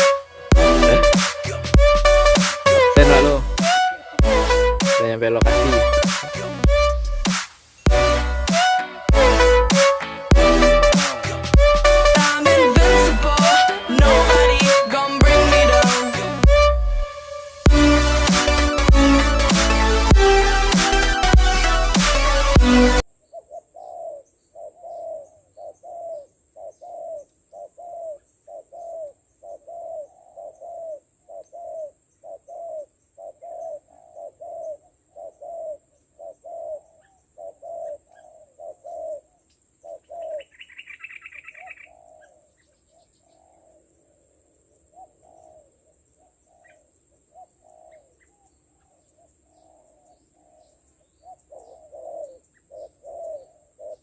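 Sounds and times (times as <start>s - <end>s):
dove cooing: 23.3s - 40.5s, 51.2s - 54.0s.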